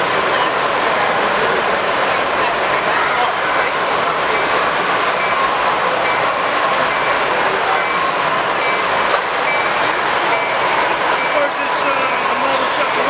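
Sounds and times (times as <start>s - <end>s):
exhibition hall din: 0.0s - 13.0s
short high-pitched beeps: 7.8s - 10.6s.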